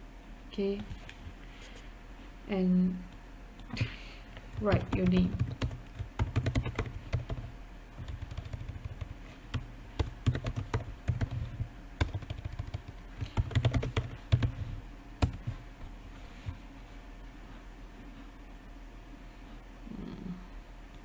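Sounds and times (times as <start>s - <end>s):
steady low hum: 0.0s - 21.0s
laptop keyboard typing: 4.4s - 15.6s.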